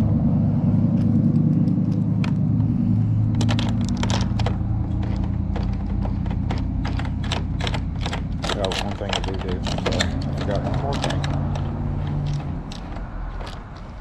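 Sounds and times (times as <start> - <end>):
low motor rumble: 0.0 - 14.0
light clicks and taps: 3.3 - 14.0.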